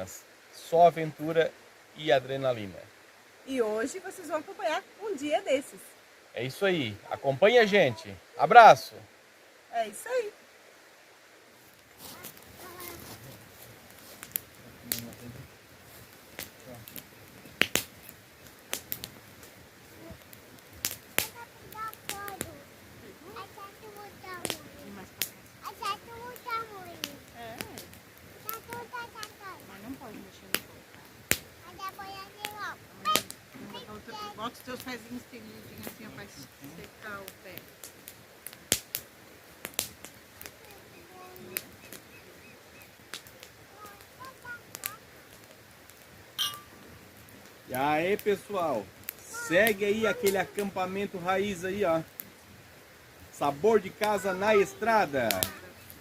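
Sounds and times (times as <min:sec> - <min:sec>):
campfire crackling: 0:00.0 - 0:56.0
falling water rushing: 0:00.0 - 0:56.0
bird chirps: 0:40.9 - 0:43.0.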